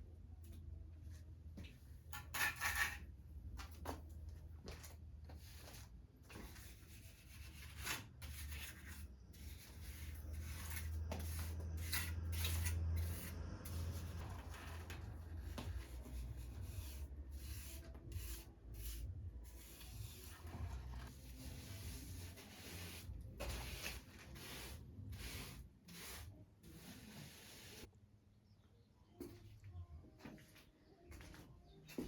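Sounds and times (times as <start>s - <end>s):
hand tool scraping plaster: 6.6s - 27.4s.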